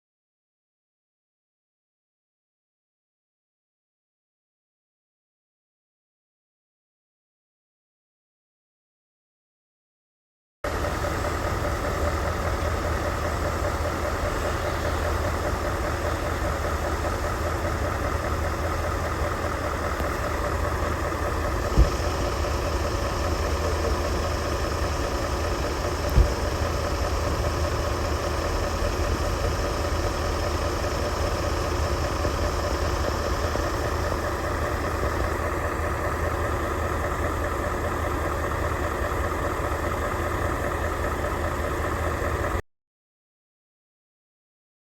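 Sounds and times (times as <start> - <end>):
diesel engine idling: 10.6 - 42.6.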